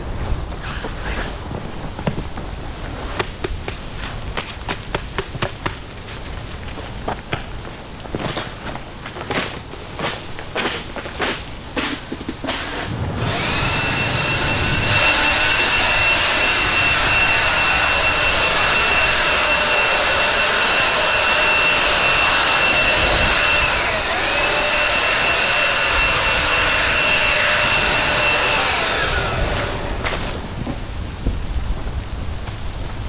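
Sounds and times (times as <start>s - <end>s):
electric air pump whining: 11.2s - 31.0s.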